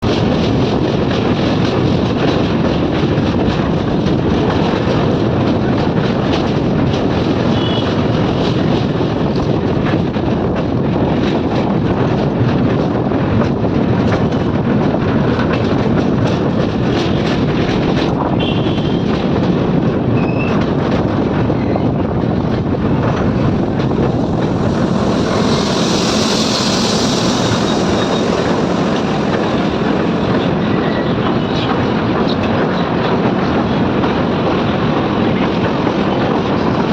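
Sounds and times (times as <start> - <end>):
train rumble and rail clatter: 0.0 - 36.9
brief high hiss: 23.8 - 30.6.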